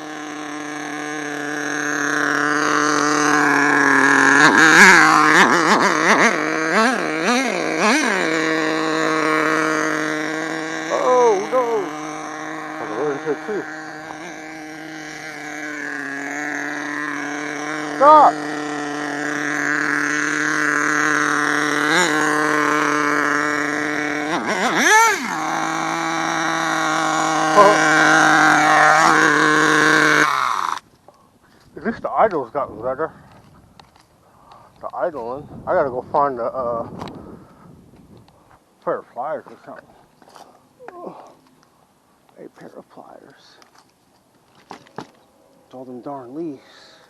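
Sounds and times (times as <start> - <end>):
nitro engine idling: 0.0 - 30.9.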